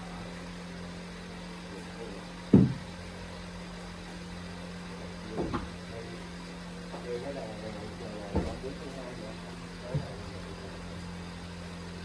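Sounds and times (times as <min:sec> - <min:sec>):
steady low hum: 0:00.0 - 0:12.0
heavy knock: 0:02.5 - 0:02.9.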